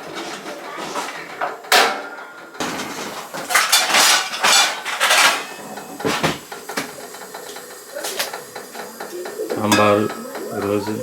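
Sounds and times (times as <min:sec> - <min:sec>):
cookware clattering and scraping: 0:00.0 - 0:07.2, 0:08.0 - 0:11.0.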